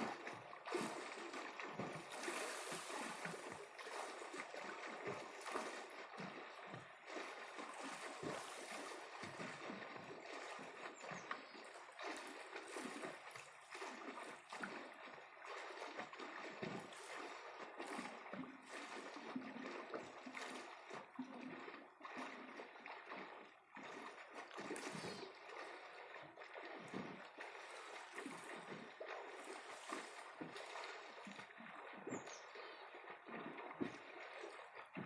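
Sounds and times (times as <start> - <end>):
sea waves washing on shore: 1.9 - 4.2.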